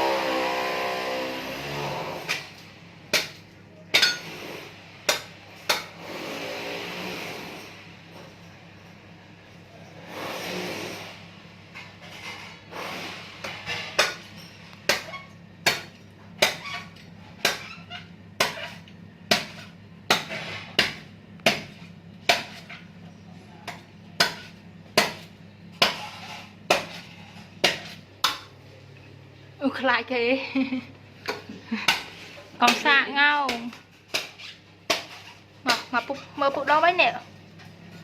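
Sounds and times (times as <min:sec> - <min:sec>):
blade chopping coconut: 0:12.8 - 0:14.3, 0:14.9 - 0:22.8, 0:23.6 - 0:28.5, 0:31.3 - 0:36.8.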